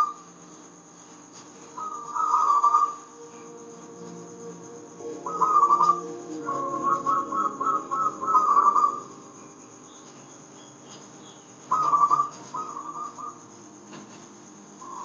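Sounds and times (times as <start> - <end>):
dove cooing trills: 1.6 - 10.0, 10.9 - 13.6.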